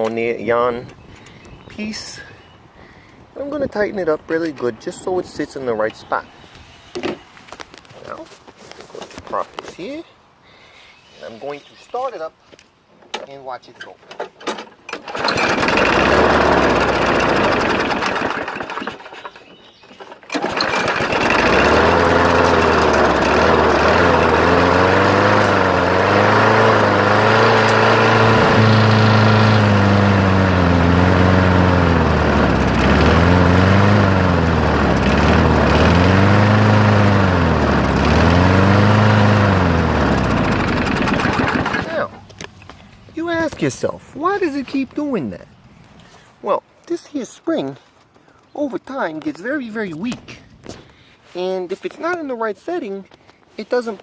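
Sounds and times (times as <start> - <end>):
lawn mower engine surging: 14.6 - 42.4.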